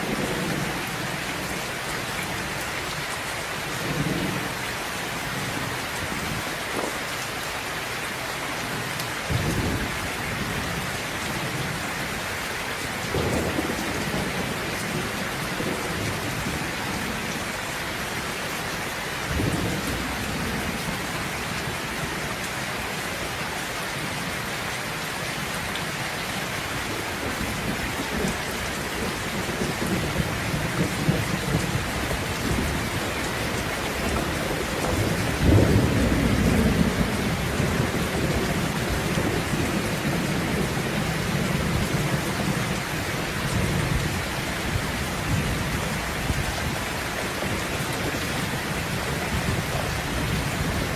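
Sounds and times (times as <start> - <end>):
heavy rain: 0.0 - 50.9
rolling thunder: 9.3 - 11.9, 13.0 - 17.4, 27.0 - 50.9.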